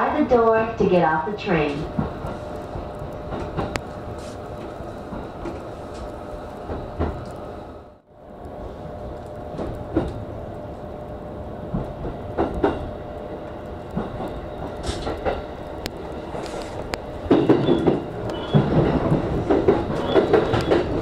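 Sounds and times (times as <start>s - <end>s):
electric train running on rails: 0.0s - 21.0s
wheels clattering over rail joints: 17.0s - 21.0s.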